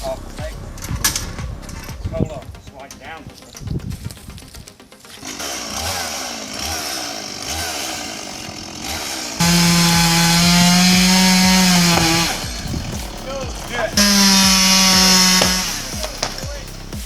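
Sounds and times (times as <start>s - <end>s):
chainsaw engine running: 5.1s - 17.0s.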